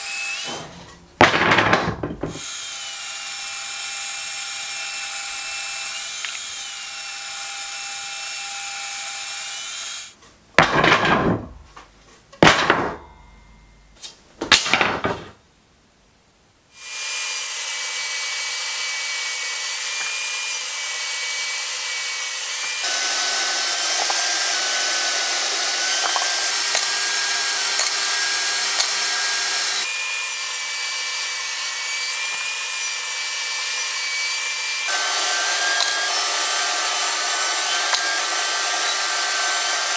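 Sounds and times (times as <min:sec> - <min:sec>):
loud knocks: 0:01.2 - 0:02.4, 0:10.6 - 0:11.7, 0:12.4 - 0:13.2
woodworking power tools running: 0:17.1 - 0:39.9.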